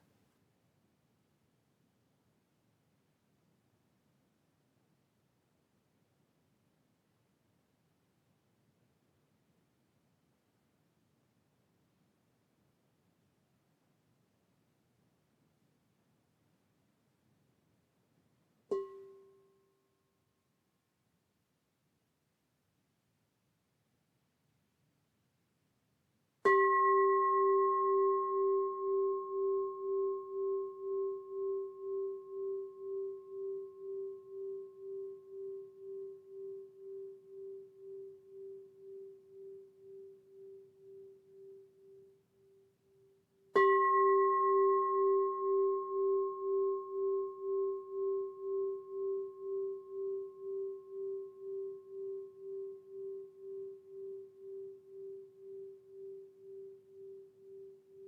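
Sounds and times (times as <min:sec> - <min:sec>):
singing bowl ringing: 0:26.4 - 0:58.0.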